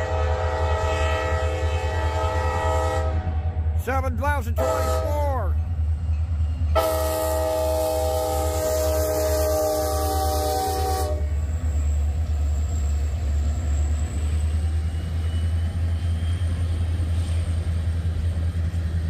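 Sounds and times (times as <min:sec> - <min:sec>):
locomotive air horn chord: 0:00.0 - 0:03.8, 0:04.6 - 0:05.4, 0:06.7 - 0:11.4
diesel locomotive rumbling: 0:00.0 - 0:19.0
train rolling on rails: 0:00.0 - 0:19.0.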